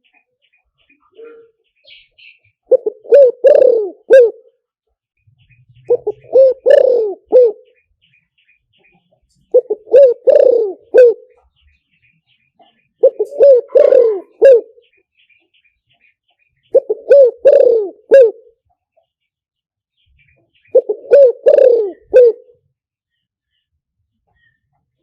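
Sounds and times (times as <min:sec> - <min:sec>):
dove cooing: 0:01.1 - 0:04.6, 0:05.8 - 0:07.8, 0:09.4 - 0:11.5, 0:12.6 - 0:15.0, 0:16.6 - 0:18.6, 0:20.6 - 0:22.6.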